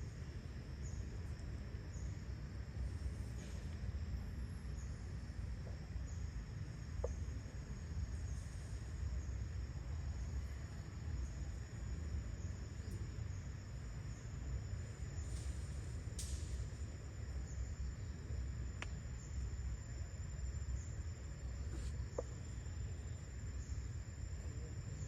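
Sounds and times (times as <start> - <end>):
crickets chorus: 0.0 - 25.0
faint chirp: 6.1 - 25.0.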